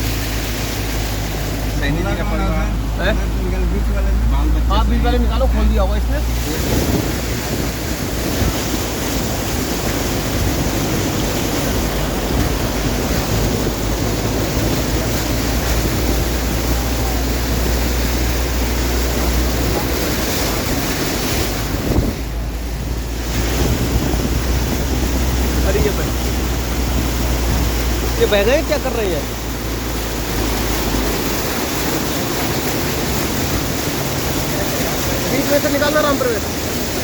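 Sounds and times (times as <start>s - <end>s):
floodwater rushing: 0.0s - 37.0s
wind buffeting microphone: 4.8s - 37.0s.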